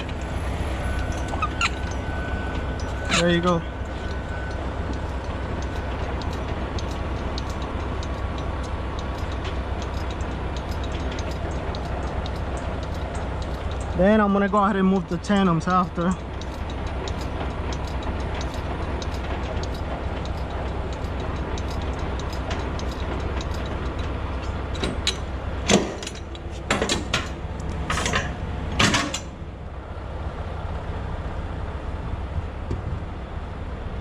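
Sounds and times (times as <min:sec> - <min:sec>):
light regular ticking: 0:00.0 - 0:26.6
diesel truck engine idling: 0:00.0 - 0:34.0.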